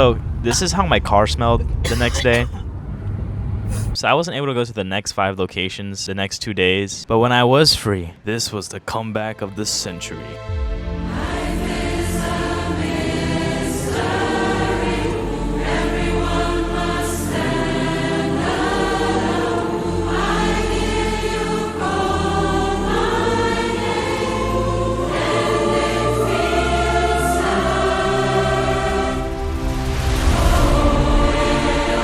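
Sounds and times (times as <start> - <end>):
sustained low bass notes: 0.0 - 4.0, 9.4 - 13.5
gospel choir singing: 9.4 - 32.0.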